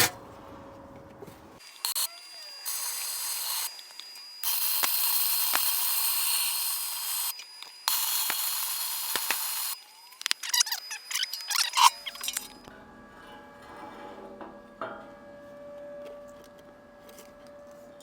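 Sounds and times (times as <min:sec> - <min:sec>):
arc welding crackle: 0:01.6 - 0:12.6.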